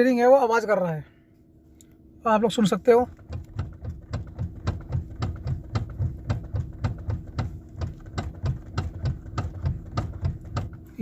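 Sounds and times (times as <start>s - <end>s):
low hum: 1.0s - 11.0s
steering column knocking: 3.0s - 11.0s.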